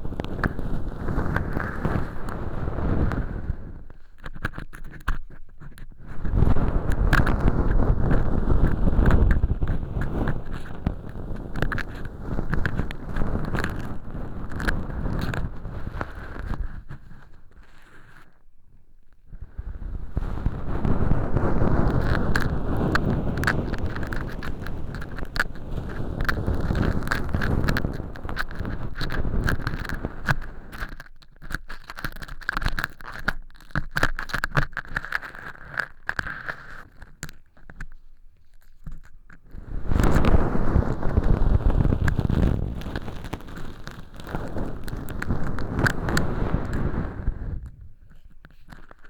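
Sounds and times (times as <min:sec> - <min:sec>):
ear pick scraping crunchy crackling: 0:00.0 - 0:49.0.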